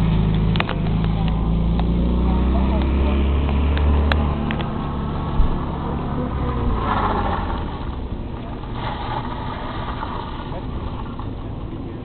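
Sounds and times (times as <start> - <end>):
car engine running: 0.0 - 12.0
tyres on wet gravel: 0.0 - 12.0.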